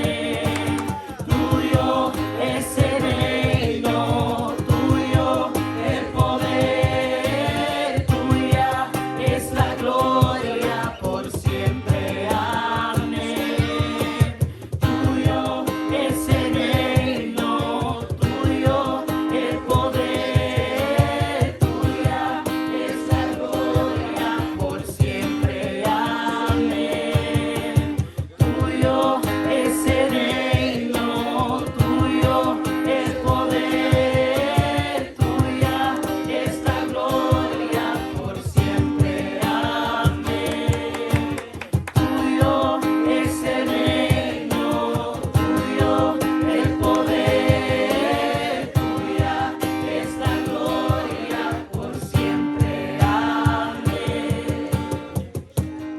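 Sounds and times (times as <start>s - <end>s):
group singing a worship song: 0.0s - 55.9s
instrumental accompaniment with beat: 0.0s - 55.9s.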